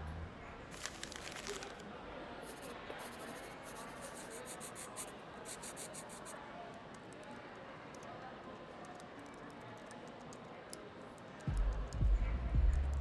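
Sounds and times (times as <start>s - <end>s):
faint distant voices: 0.0s - 13.0s
scratchy clicks and rubbing: 2.5s - 6.3s.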